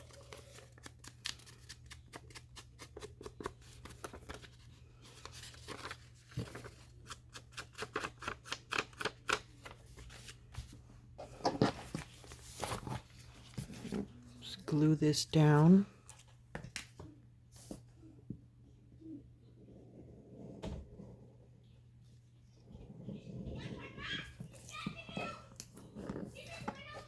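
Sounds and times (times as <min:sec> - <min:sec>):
paper rustling: 0:00.0 - 0:14.2.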